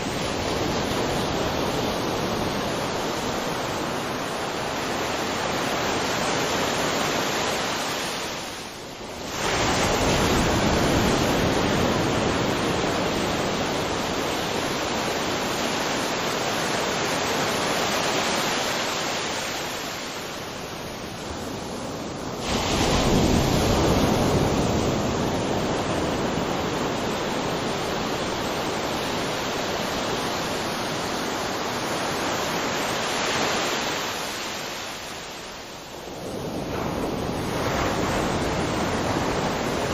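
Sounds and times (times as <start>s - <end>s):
ocean surf breaking: 0.0s - 39.9s.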